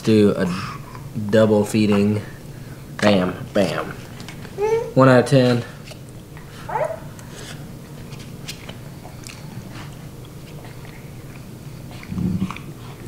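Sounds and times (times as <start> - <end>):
person chewing food: 8.5 - 13.0.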